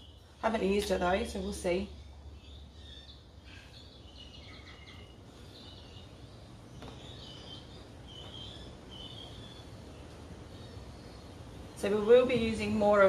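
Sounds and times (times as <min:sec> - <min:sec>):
birds chirping: 0:00.0 - 0:13.0
low steady hum: 0:00.0 - 0:13.0.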